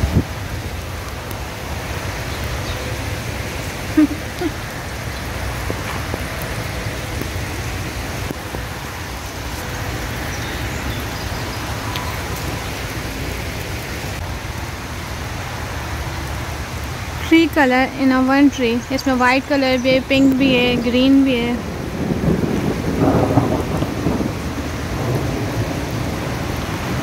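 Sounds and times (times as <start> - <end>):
rain on wet pavement: 0.0 - 27.0.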